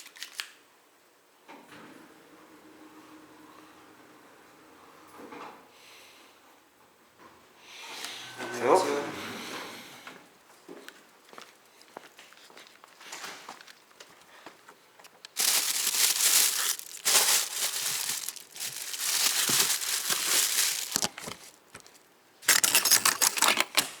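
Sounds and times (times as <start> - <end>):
rustling and crinkling: 10.8 - 23.8.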